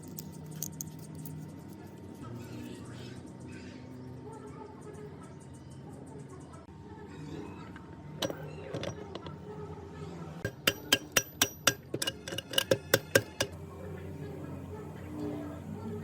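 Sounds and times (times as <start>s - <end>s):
ringing metal strikes: 10.4s - 13.5s
metal clinks: 10.5s - 13.5s.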